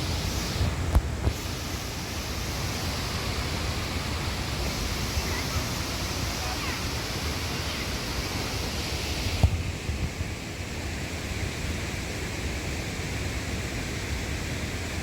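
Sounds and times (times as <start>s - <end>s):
wind gusting on microphone: 0.0s - 12.0s
waterfall rushing over rocks: 0.0s - 15.0s.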